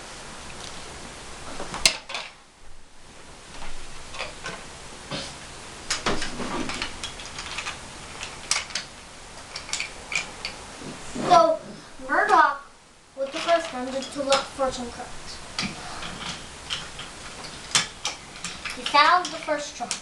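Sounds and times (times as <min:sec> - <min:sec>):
wooden toy train clicking: 0:05.9 - 0:10.6, 0:13.2 - 0:14.5, 0:15.6 - 0:20.0.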